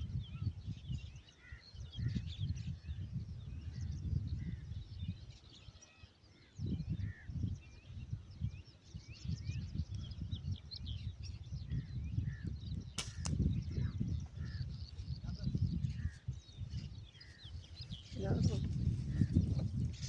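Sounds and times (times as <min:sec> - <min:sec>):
wind buffeting microphone: 0:00.0 - 0:05.8, 0:06.4 - 0:20.0
small birds chirping: 0:00.0 - 0:20.0
air rifle shot: 0:13.0 - 0:13.4.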